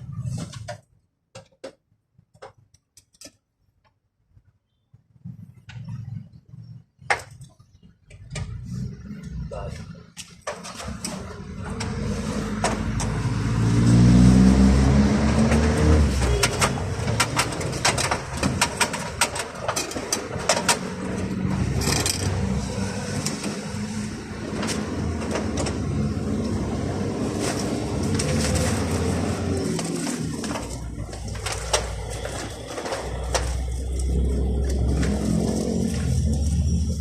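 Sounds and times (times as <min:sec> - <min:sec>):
vehicle engine revving: 0:11.0 - 0:18.7, 0:21.0 - 0:37.0
sharp clicks and knocks: 0:15.3 - 0:22.4.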